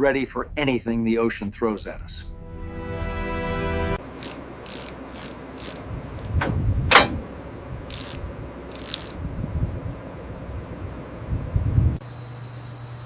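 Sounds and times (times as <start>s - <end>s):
low rumble: 0.0s - 4.0s
loud metal clang: 6.4s - 7.3s.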